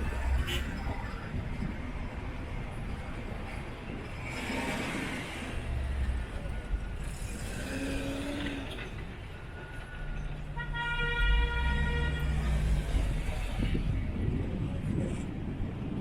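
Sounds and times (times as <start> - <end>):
city traffic rumble: 0.0 - 16.0
vehicle horn honking: 0.4 - 0.8, 10.6 - 12.5.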